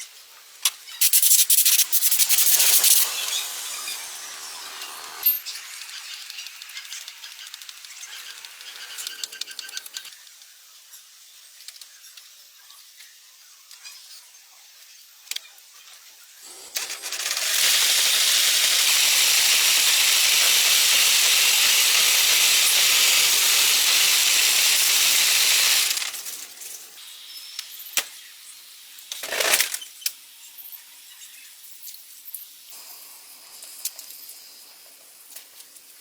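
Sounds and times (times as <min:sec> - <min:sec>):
short sharp hiss: 0:01.0 - 0:05.3
loud steady hiss: 0:01.0 - 0:05.4, 0:16.9 - 0:27.2.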